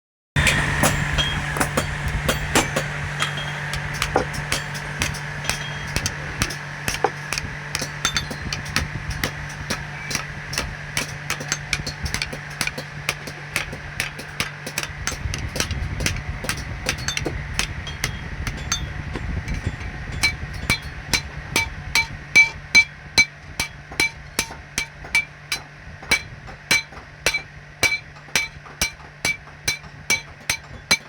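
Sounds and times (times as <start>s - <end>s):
hammer striking hot steel on anvil: 0.4s - 31.0s
steady low hum: 0.4s - 31.0s.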